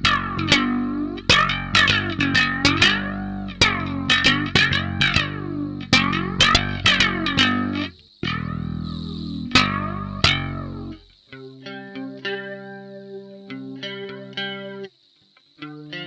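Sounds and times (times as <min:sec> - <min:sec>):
bass guitar: 0:00.0 - 0:12.4
guitar plucked notes: 0:00.0 - 0:14.9, 0:15.6 - 0:16.0.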